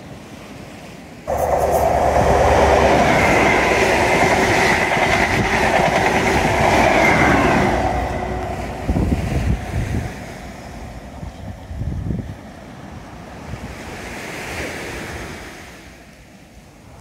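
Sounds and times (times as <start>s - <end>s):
high steady whine: 1.3s - 11.5s
train wheels rushing on rail: 1.3s - 15.5s.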